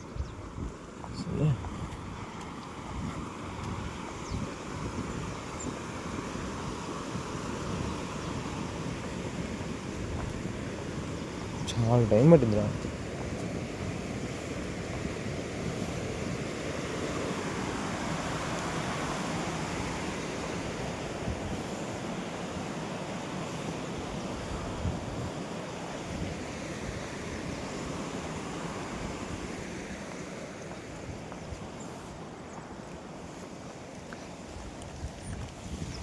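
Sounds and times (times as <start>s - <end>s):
wind rumbling on microphone: 0.0s - 36.0s
water rushing from waterfall: 1.1s - 31.8s.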